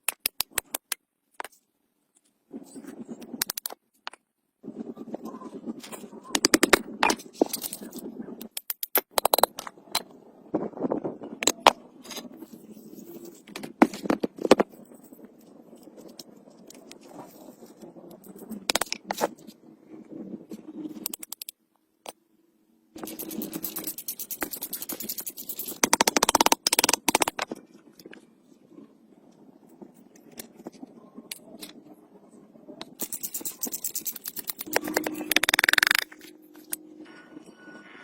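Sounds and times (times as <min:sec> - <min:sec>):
rapid scraping: 0:23.0 - 0:27.4.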